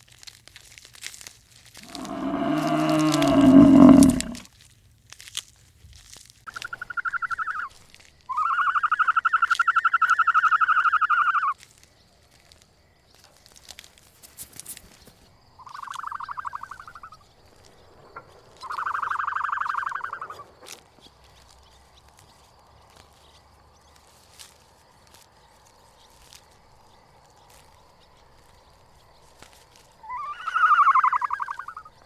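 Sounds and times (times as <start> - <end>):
frog trilling: 1.8 - 4.4, 30.0 - 31.9.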